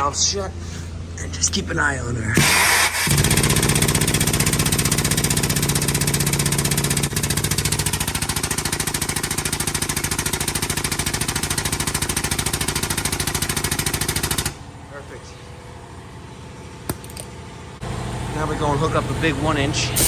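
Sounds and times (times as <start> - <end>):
pneumatic jack pumping chatter: 2.4 - 3.2.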